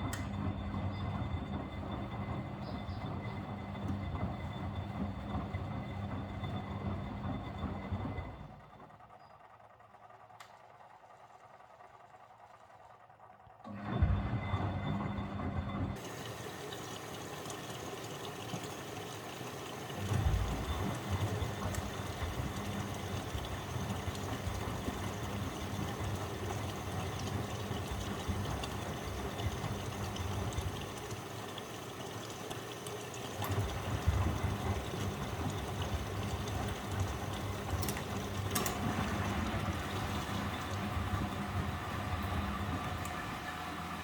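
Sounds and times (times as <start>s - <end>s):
washing machine motor hum: 0.0s - 44.0s
motor starting with a thump: 13.7s - 15.1s, 20.0s - 27.4s
water rushing in drum: 15.9s - 44.0s
heavy drum rumble: 20.0s - 30.9s.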